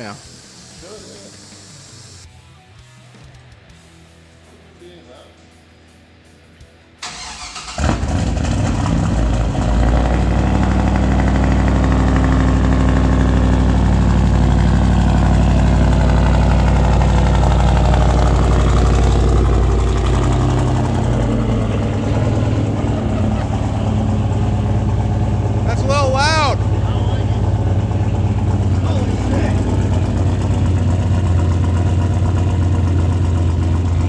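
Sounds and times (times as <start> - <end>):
car engine starting and idling: 7.0 - 34.0
loud unmuffled exhaust: 7.7 - 34.0.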